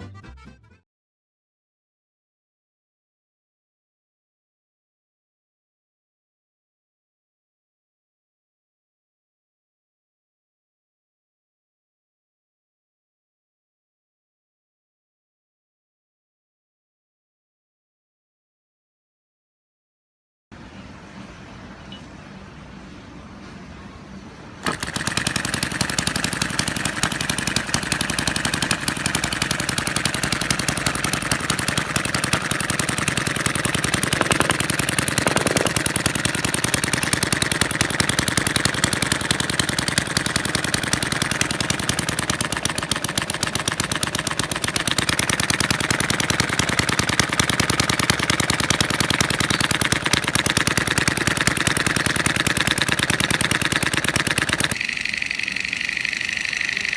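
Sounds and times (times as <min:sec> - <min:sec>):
small model engine running: 0:24.6 - 0:56.9.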